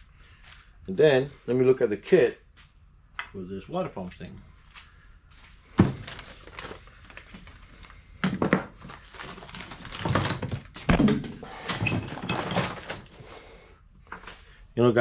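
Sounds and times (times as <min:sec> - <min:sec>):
packets rustling: 0:05.6 - 0:13.2.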